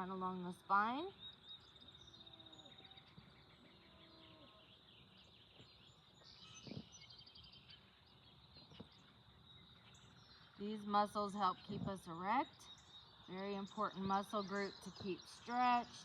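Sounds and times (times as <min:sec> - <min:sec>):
bird chirps: 0:00.0 - 0:16.0.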